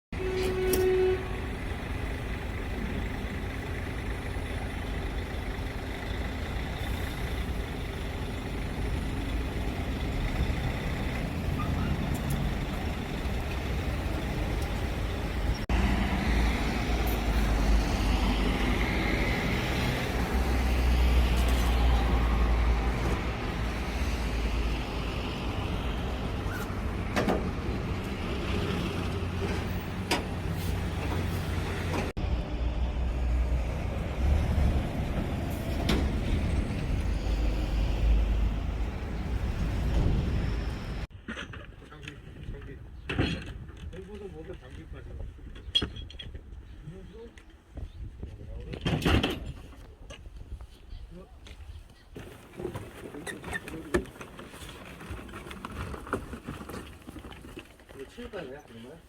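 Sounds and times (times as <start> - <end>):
motor vehicle running: 0.2 - 41.1.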